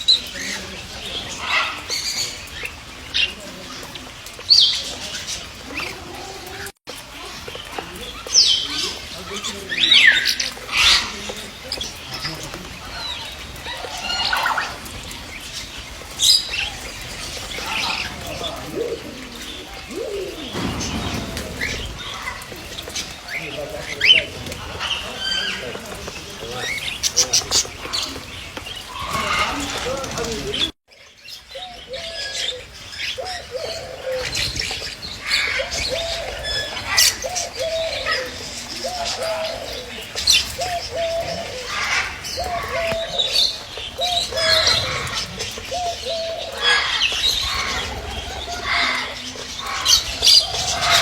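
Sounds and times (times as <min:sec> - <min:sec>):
pigeons cooing: 0:00.0 - 0:30.8, 0:31.4 - 0:51.0
birds chirping: 0:00.0 - 0:51.0
sudden sharp loud bang: 0:20.5 - 0:23.4.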